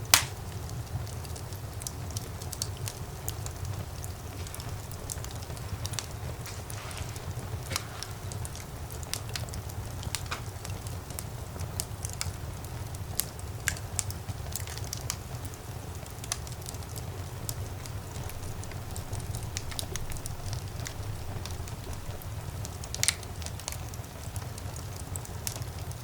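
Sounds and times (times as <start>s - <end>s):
fire flames rumbling: 0.0s - 26.0s
logs crackling and popping: 0.0s - 26.0s.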